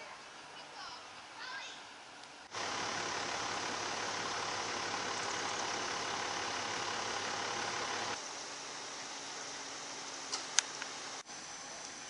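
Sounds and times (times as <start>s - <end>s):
truck engine running: 2.5s - 11.3s.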